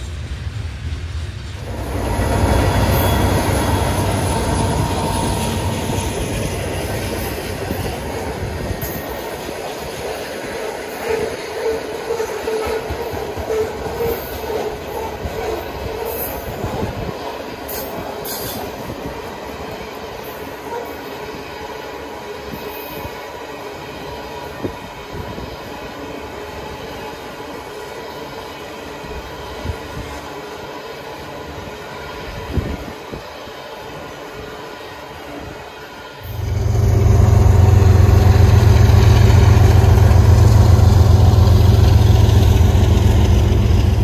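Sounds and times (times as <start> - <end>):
train wheels rumbling on rail: 0.0 - 44.0
held whine: 1.6 - 9.3, 36.2 - 44.0.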